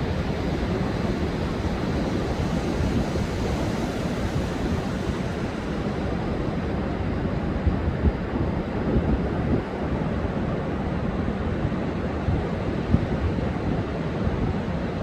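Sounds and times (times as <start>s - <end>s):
surf breaking on beach: 0.0s - 8.1s
wind buffeting microphone: 0.0s - 15.0s.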